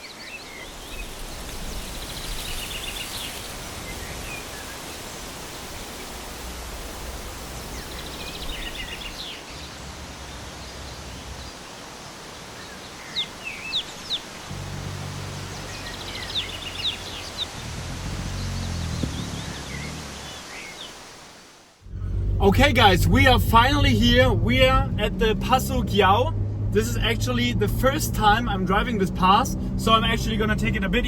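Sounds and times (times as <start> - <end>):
small birds chirping: 0.0 - 6.2, 7.6 - 21.2
steady hiss of wind or water: 0.0 - 21.9.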